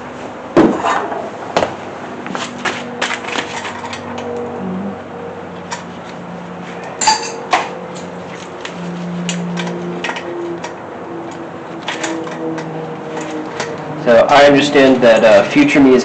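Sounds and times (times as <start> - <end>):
metal bolts and tools clinking: 7.0 - 7.7.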